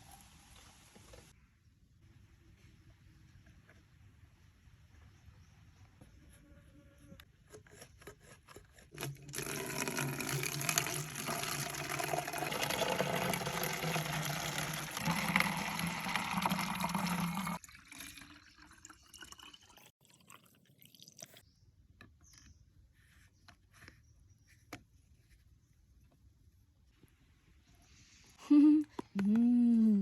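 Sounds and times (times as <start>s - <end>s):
water pouring into container: 9.0s - 21.4s.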